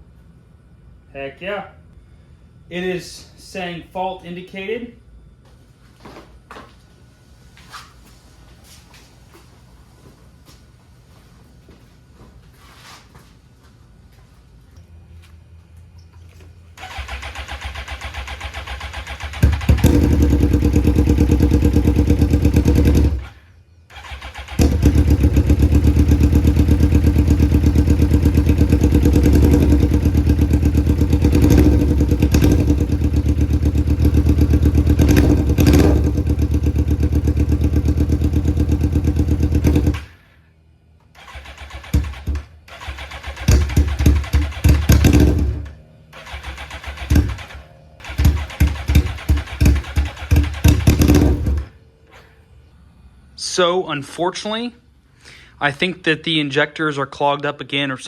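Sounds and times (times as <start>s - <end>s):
motorcycle engine running roughly: 16.8s - 23.4s, 24.0s - 40.1s, 41.2s - 51.8s.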